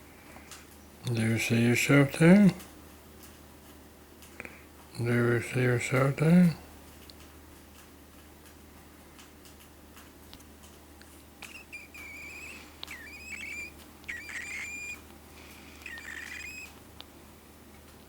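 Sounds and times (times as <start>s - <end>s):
bird chick chirping: 11.4s - 15.1s, 15.7s - 16.8s
faint ticks: 11.4s - 15.1s, 15.8s - 16.8s.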